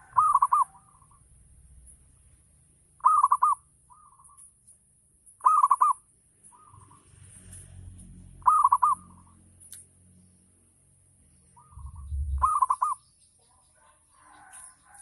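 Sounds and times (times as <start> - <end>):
dove cooing: 0.0 - 1.2, 3.0 - 4.4, 5.4 - 6.0, 8.4 - 9.3, 11.6 - 13.0.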